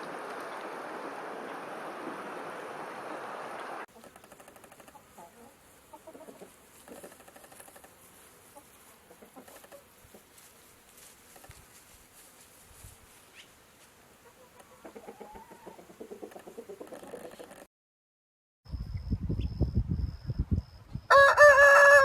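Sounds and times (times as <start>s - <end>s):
birds clucking: 3.7s - 10.4s, 14.2s - 17.6s.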